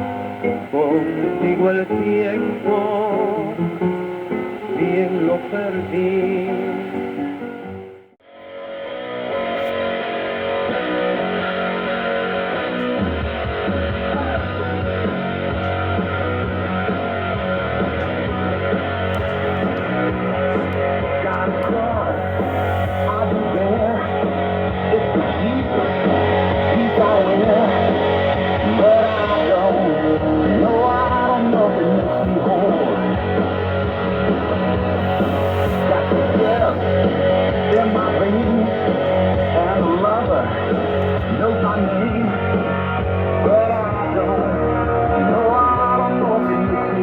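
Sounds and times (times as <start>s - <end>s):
rock music on shortwave radio: 0.0s - 47.0s.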